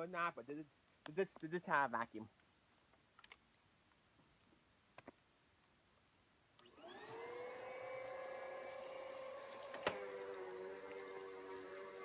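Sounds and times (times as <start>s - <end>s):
vacuum cleaner motor whining: 6.6s - 12.0s.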